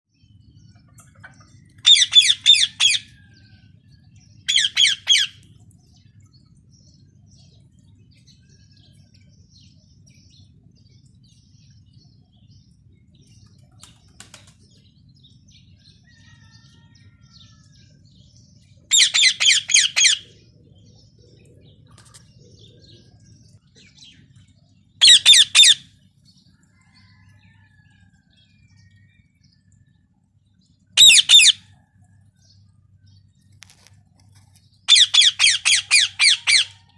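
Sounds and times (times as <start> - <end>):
parrot shrill calls: 1.8 - 3.1, 4.5 - 5.3, 18.9 - 20.2, 25.0 - 25.8, 31.0 - 31.6, 34.9 - 36.8.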